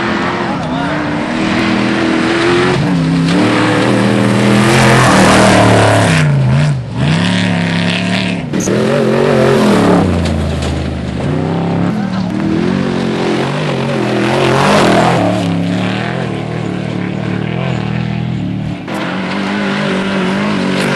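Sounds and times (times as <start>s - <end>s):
race truck engine revving: 0.0s - 20.9s.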